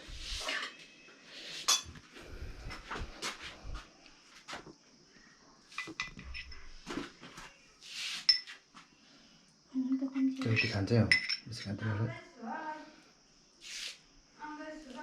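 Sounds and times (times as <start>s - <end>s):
dishes and spoons clinking: 1.6s - 2.0s, 5.7s - 6.8s, 8.2s - 8.6s, 10.4s - 11.8s.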